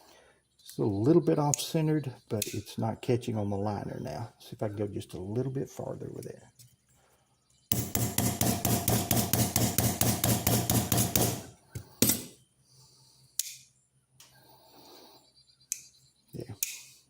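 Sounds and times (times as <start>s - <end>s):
hammer knocks: 7.7s - 11.4s
hammer tapping on metal: 7.7s - 12.3s.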